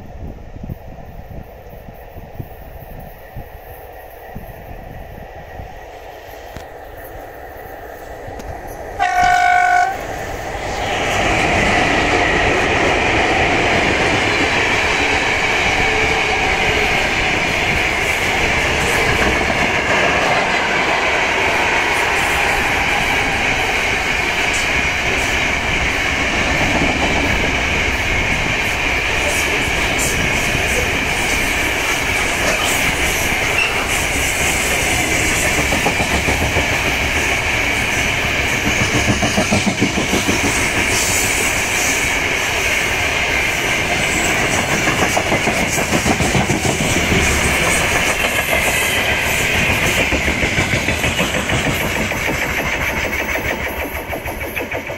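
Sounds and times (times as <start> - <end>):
freight train wheels rumbling: 0.0 - 54.9
wheels clickety-clack on rails: 6.5 - 54.9
locomotive horn blast: 9.0 - 10.1.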